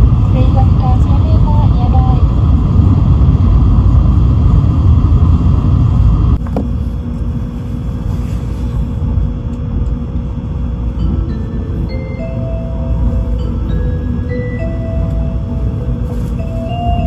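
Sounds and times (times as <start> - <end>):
train low rumble inside car: 0.0 - 17.0.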